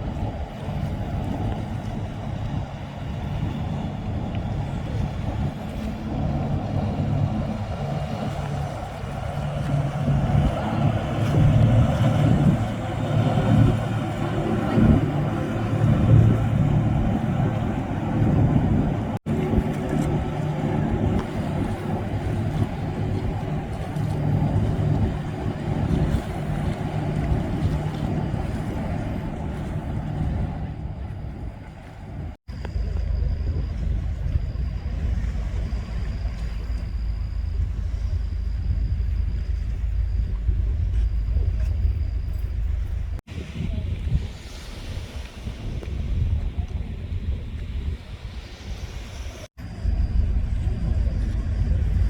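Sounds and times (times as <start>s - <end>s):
propeller wash churning: 0.0s - 43.4s
diesel engines droning: 4.0s - 43.2s.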